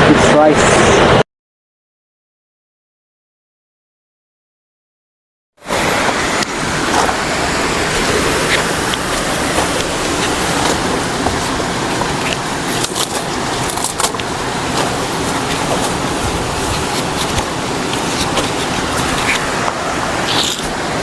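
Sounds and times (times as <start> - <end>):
waterfall rushing: 5.7 - 21.0.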